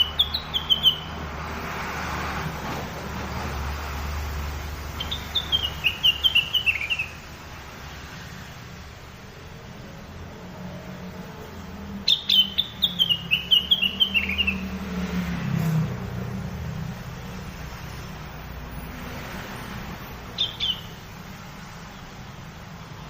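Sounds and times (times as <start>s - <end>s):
bird whistling song: 0.0s - 1.2s, 5.0s - 7.2s, 12.1s - 14.8s, 20.4s - 21.0s.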